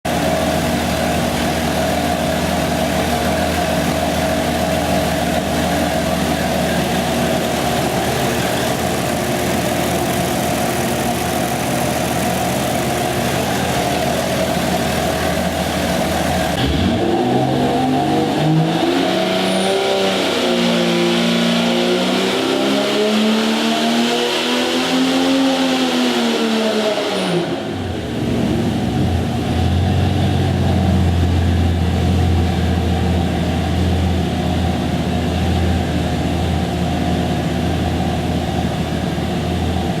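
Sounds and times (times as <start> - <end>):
car engine revving: 0.1 - 39.9.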